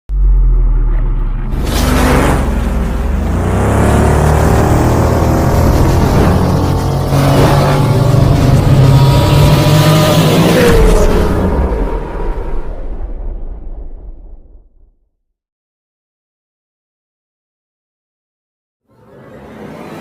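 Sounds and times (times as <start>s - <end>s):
deep steady rumble: 0.1s - 7.1s
vehicle engine revving: 0.1s - 12.7s.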